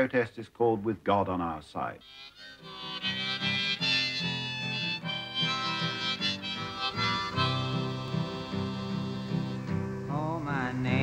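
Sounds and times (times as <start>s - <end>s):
harmonica chords: 2.0s - 11.0s
strummed acoustic guitar: 2.6s - 11.0s.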